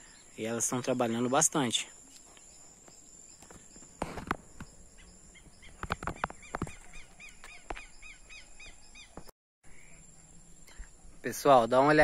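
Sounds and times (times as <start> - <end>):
bird chirping rapidly: 4.6 - 10.0.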